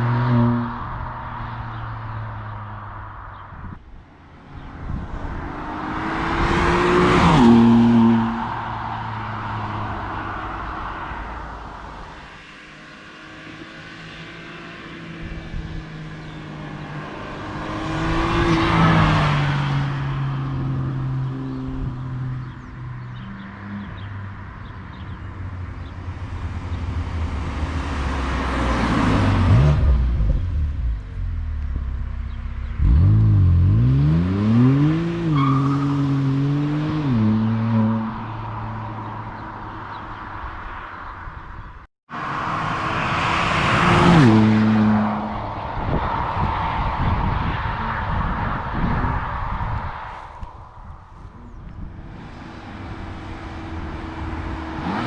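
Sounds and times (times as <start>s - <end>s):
car engine revving: 26.4s - 38.8s, 51.2s - 55.0s.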